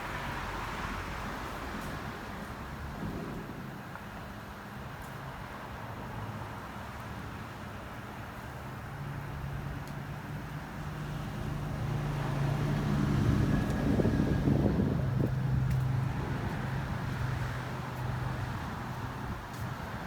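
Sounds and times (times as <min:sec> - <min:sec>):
vehicle engine hum: 0:08.0 - 0:20.0.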